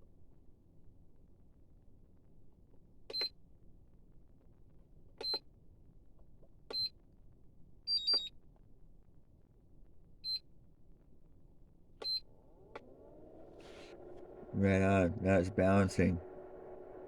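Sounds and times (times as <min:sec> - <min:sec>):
charger beeps: 0:12.0 - 0:17.0.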